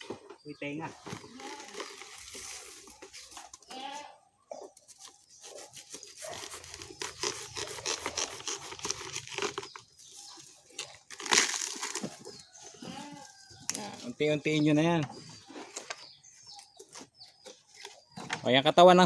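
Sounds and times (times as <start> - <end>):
banana trunk ripping and crackling: 1.0 - 3.8, 4.7 - 13.9.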